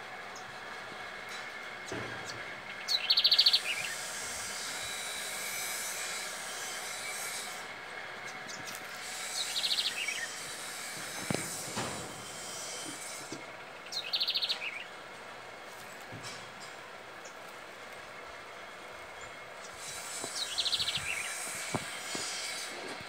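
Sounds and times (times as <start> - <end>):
small bird calling: 2.3 - 4.7, 8.2 - 10.5, 13.8 - 14.9, 19.2 - 22.5.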